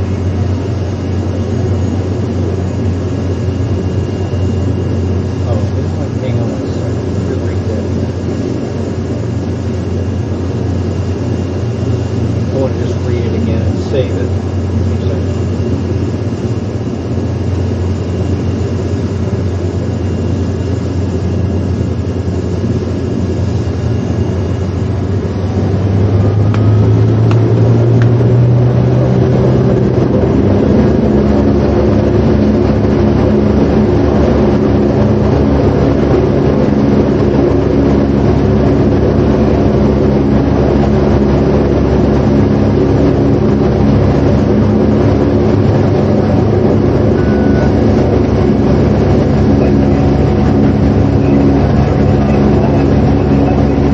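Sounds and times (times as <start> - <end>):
engine-like drone: 0.0 - 53.9.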